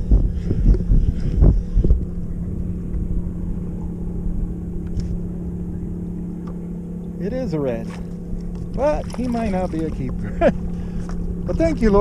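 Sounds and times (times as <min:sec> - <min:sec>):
wind thumps on microphone: 0:00.0 - 0:03.4
boat motor humming drone: 0:00.0 - 0:12.0.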